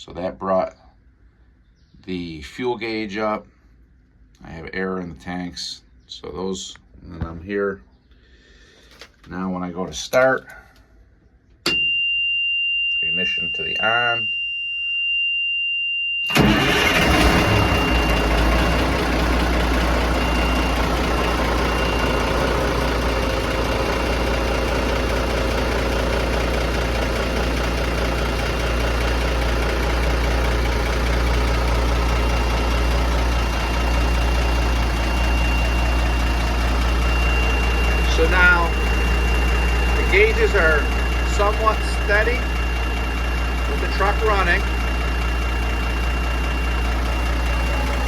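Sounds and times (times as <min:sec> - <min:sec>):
high warning buzzer: 0:11.7 - 0:28.9, 0:29.5 - 0:48.0
diesel engine cranking and idling: 0:16.3 - 0:48.0.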